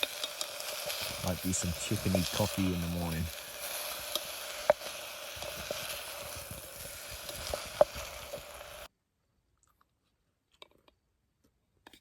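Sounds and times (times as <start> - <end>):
chicken sizzling in a pot: 0.0 - 8.9.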